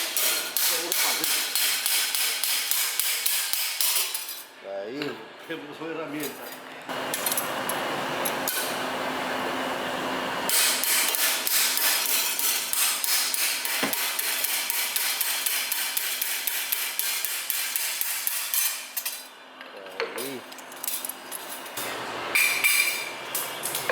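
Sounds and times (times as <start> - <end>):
hammer striking metal: 0.0 - 4.3.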